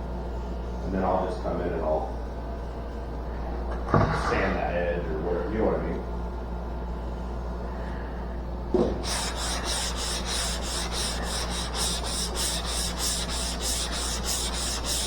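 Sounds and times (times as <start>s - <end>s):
sandpaper rubbing on metal panel: 9.0s - 15.0s.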